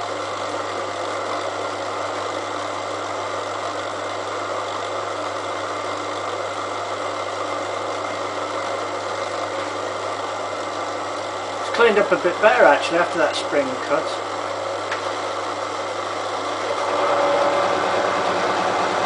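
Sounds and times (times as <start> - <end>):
milling machine cutting steel: 15.2 - 19.0.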